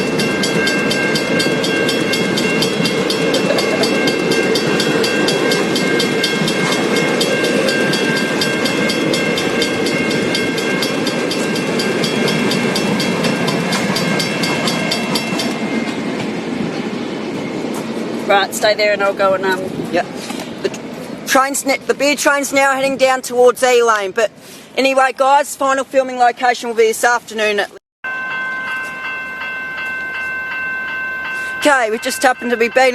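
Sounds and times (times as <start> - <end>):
level crossing bell ringing: 0.0 - 15.7, 28.0 - 32.9
train rumble and wheel clatter: 0.0 - 32.9.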